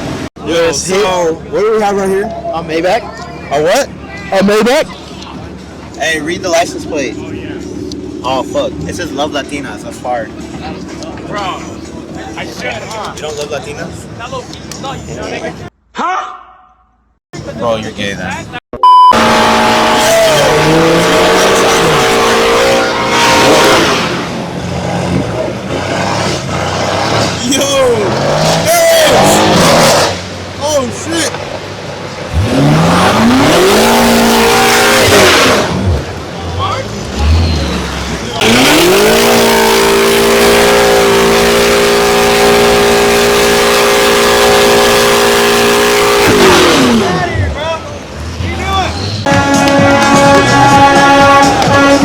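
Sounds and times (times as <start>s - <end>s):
car engine revving: 19.2s - 52.0s.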